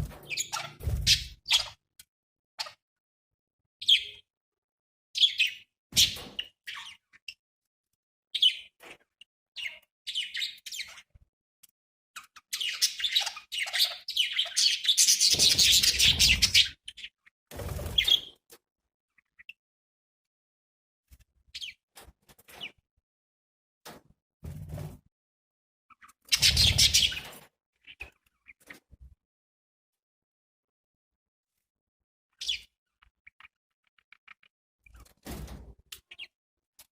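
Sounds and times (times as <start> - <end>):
budgerigars chirping: 12.3 - 17.1, 26.3 - 27.3.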